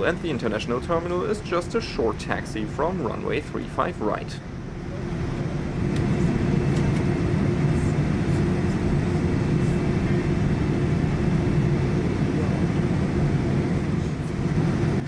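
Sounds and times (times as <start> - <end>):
aircraft engines idling: 0.0 - 15.0.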